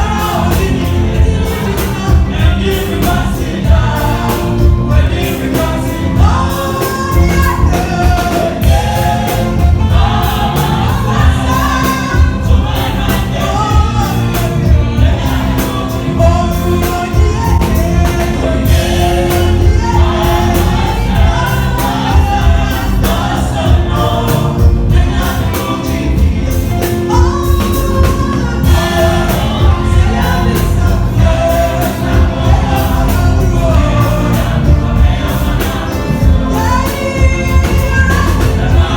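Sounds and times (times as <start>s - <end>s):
congregation singing: 0.0s - 38.9s
steady drum beat: 0.0s - 38.9s.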